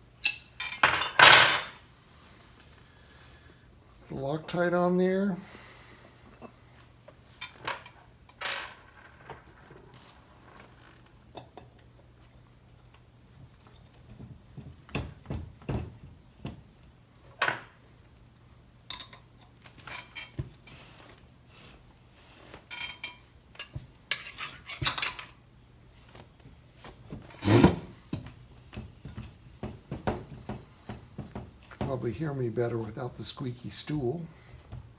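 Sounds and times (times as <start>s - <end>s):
metal tools clinking and rattling: 0.2s - 1.8s, 7.4s - 9.2s, 18.9s - 20.8s, 22.7s - 25.4s.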